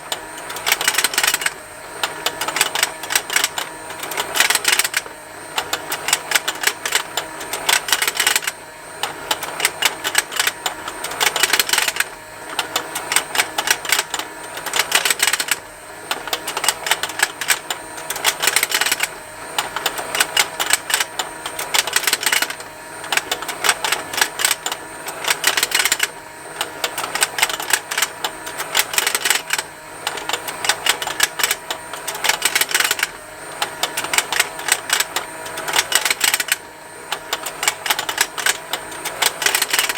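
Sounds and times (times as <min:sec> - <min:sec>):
toy motor with plastic ticking: 0:00.0 - 0:39.9.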